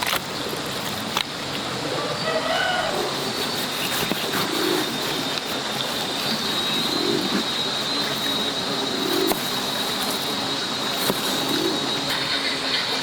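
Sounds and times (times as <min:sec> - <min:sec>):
dove cooing: 0:01.7 - 0:13.0.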